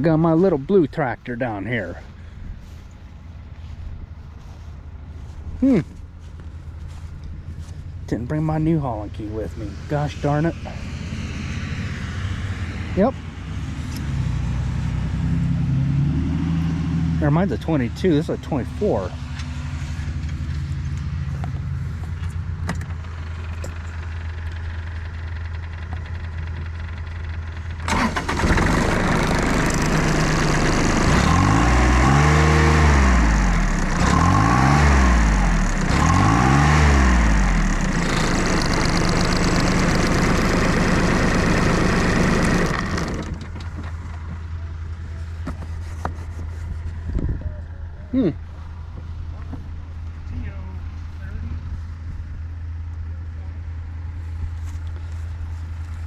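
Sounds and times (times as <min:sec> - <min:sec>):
tractor diesel engine revving: 0:08.1 - 0:22.1, 0:23.0 - 0:44.3.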